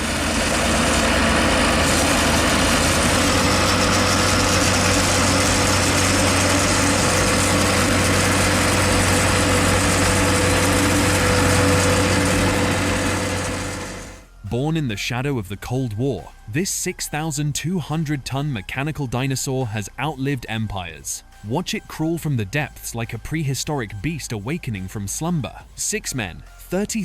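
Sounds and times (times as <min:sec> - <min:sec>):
heavy machinery engine drone: 0:00.0 - 0:14.6.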